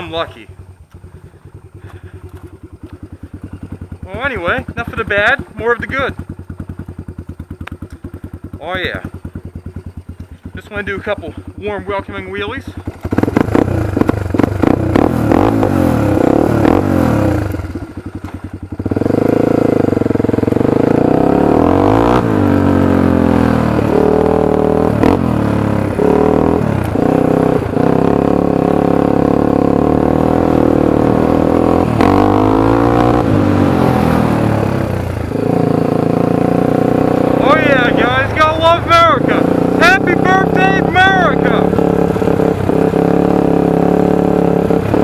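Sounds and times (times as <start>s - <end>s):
atv engine revving: 0.0s - 45.0s.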